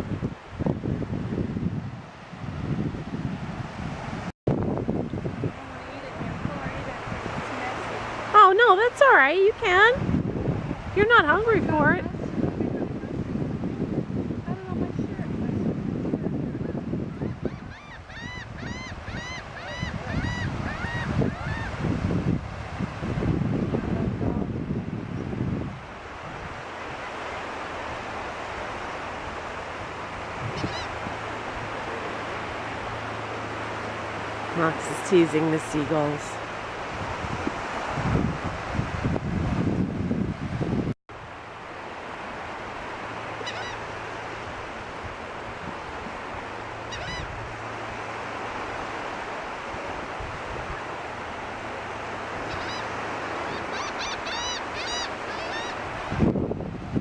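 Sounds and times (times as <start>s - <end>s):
surf: 0.0s - 57.0s
wind: 0.0s - 57.0s
gulls calling: 17.1s - 21.9s, 26.6s - 36.8s, 43.0s - 48.4s, 50.6s - 56.1s
gull squawking: 17.4s - 21.7s, 30.5s - 31.0s, 43.4s - 43.8s, 46.9s - 47.3s, 52.4s - 55.8s.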